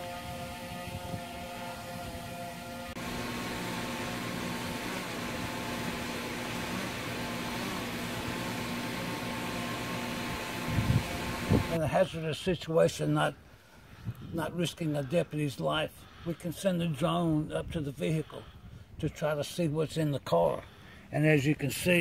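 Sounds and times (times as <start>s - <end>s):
drone propellers whining: 0.0s - 11.8s
loud hiss with low hum: 0.0s - 12.5s.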